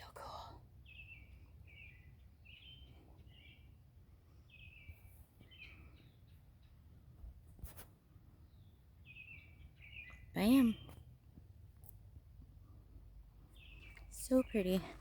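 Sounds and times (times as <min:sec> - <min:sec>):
songbird chirping: 0:00.0 - 0:07.4, 0:08.0 - 0:15.0.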